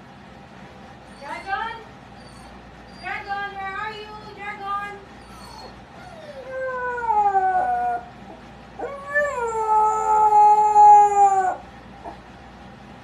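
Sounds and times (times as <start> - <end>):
dog howling: 5.3 - 12.2.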